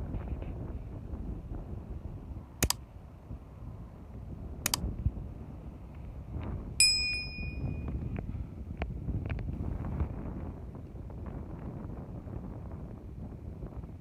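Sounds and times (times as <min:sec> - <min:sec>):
low rumbling wind noise: 0:00.0 - 0:14.0
sharp double clicks: 0:02.6 - 0:02.8, 0:04.6 - 0:04.9
high metallic ping: 0:06.8 - 0:07.9.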